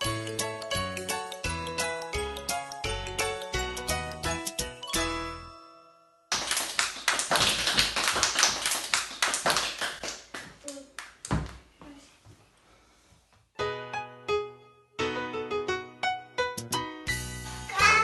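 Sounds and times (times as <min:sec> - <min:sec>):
children's song music: 0:00.0 - 0:05.8, 0:13.6 - 0:18.0.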